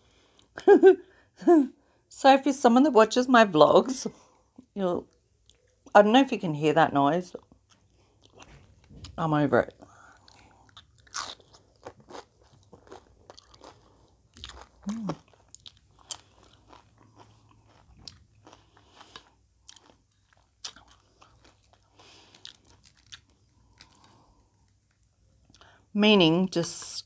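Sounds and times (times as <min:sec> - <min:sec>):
tortilla chips crunching: 0:10.2 - 0:25.6
person humming mm: 0:14.8 - 0:15.2.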